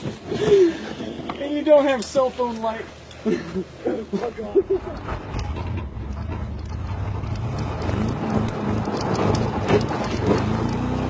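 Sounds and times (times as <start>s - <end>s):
truck engine revving: 4.7s - 11.0s.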